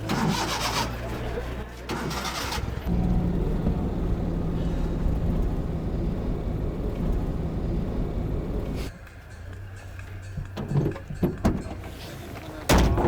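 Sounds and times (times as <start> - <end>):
motor rumbling: 0.0 - 8.9
held motor hum: 2.6 - 8.9.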